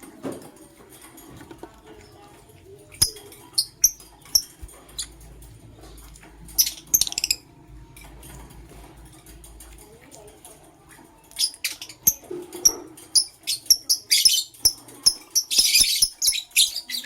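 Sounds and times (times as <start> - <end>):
lovebirds chirping: 1.9 - 7.6, 11.2 - 17.0.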